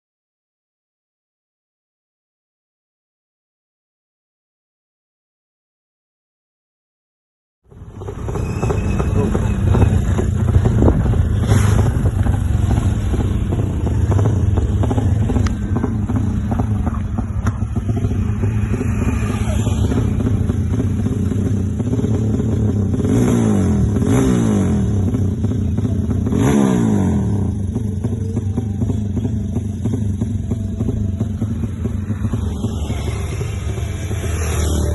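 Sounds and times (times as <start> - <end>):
motorcycle engine revving: 7.7 - 34.9.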